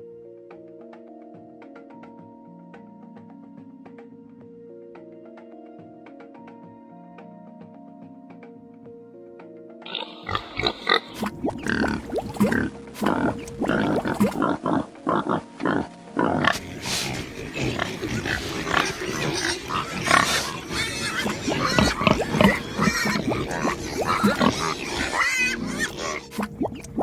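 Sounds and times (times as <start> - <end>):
thick mud bubbling and popping: 11.1 - 14.4, 16.5 - 24.9, 25.9 - 27.0.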